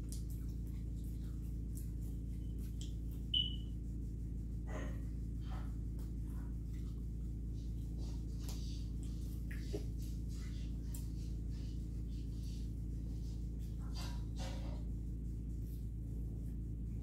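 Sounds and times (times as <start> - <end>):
faint chewing mouth sounds: 0.0 - 3.6, 4.5 - 12.7
low room hum: 0.0 - 17.0
short high-pitched beep: 3.4 - 3.6.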